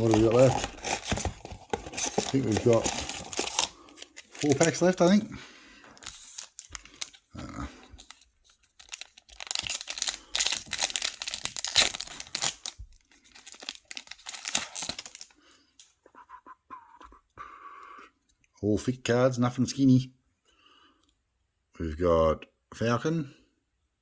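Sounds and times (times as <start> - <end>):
foil card pack tearing: 0.0 - 5.2, 6.0 - 7.2, 8.8 - 15.3
wrapper crinkling: 0.0 - 5.3, 6.0 - 7.3, 7.9 - 15.3.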